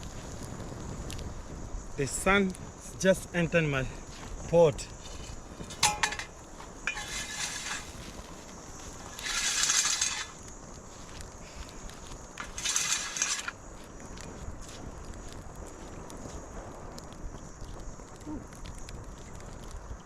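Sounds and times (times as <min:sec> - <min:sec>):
metal pot scraping: 0:05.1 - 0:06.3, 0:06.9 - 0:08.0, 0:09.1 - 0:10.4, 0:12.4 - 0:13.6
metal pot clinking: 0:05.7 - 0:06.3, 0:06.9 - 0:07.9.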